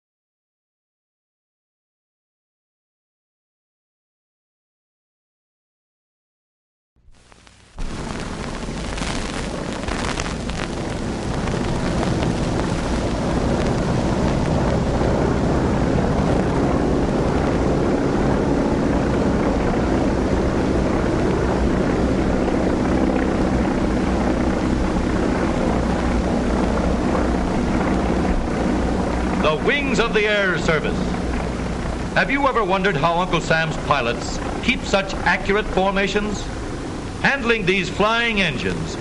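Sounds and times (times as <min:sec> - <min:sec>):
propeller airplanes droning: 0:07.8 - 0:39.0.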